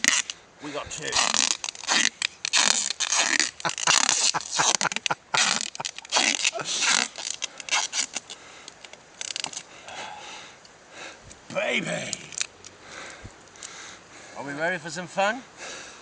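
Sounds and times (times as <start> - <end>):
scraping and rustling: 0.0 - 9.7.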